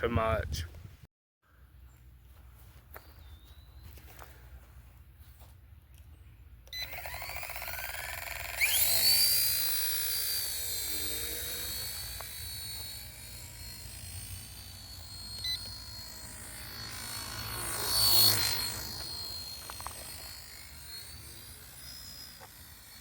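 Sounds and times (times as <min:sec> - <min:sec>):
rc helicopter motor whine: 0:06.6 - 0:23.0.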